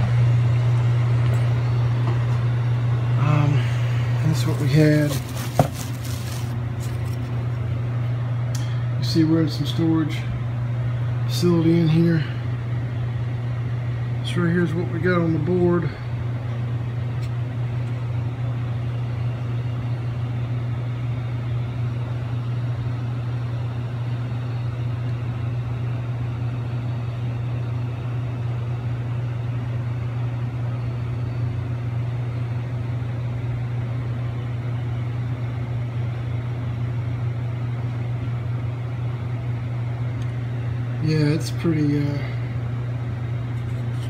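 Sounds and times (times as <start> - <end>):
hvac equipment humming: 0.0 - 44.0.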